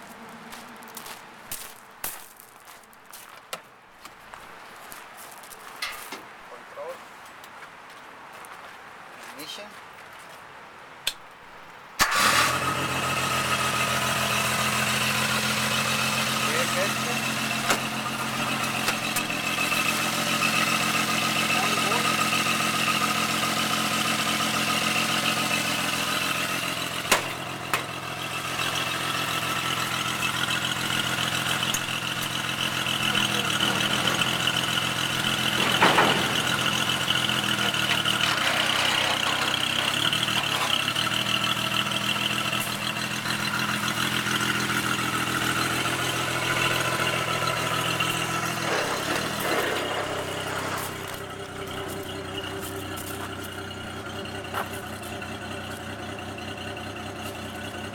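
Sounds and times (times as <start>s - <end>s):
small engine running: 12.0s - 57.9s.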